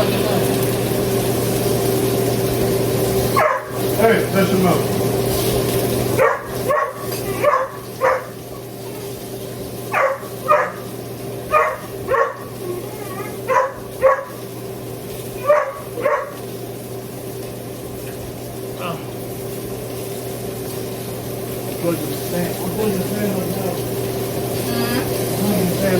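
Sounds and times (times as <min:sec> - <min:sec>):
dog barking: 0:03.3 - 0:03.9, 0:06.2 - 0:09.2, 0:09.9 - 0:14.5, 0:15.3 - 0:16.5.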